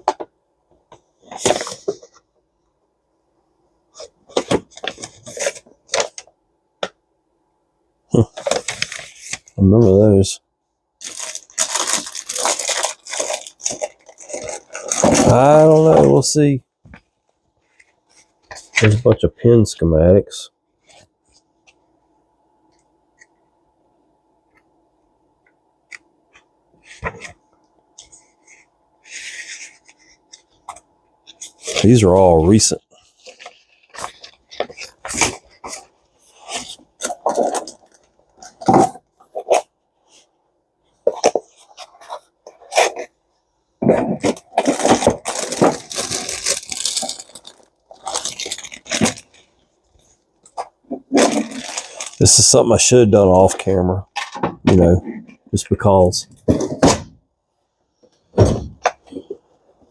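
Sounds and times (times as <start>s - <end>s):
paper rustling: 11.0s - 16.2s, 28.0s - 40.2s.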